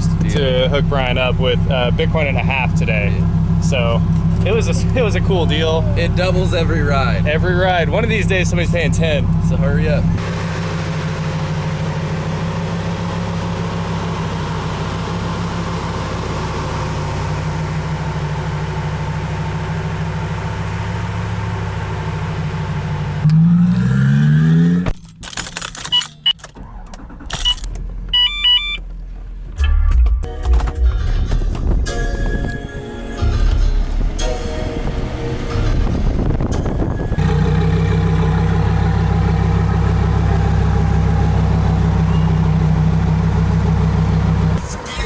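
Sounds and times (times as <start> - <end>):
car engine idling and revving: 0.0 - 45.0
electronic beeps: 28.2 - 28.8.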